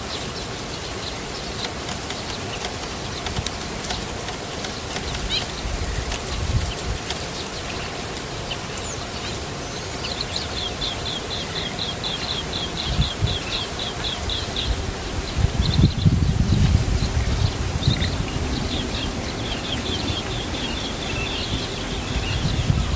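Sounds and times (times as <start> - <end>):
nestlings chirping: 0.1 - 22.9.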